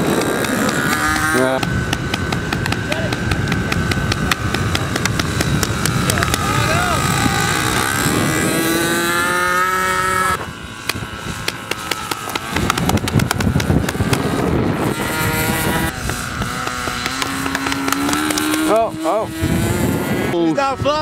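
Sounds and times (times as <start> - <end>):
model airplane engine drone: 0.0 - 21.0
rough noise with sharp ticks: 16.0 - 18.8.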